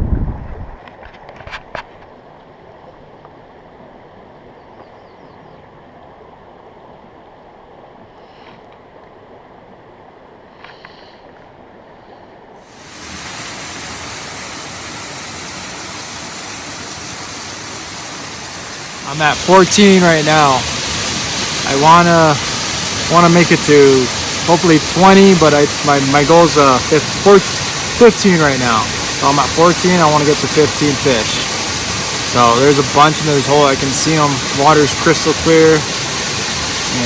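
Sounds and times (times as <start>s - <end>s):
wind buffeting microphone: 0.0s - 0.8s
creek water rushing: 12.6s - 37.0s.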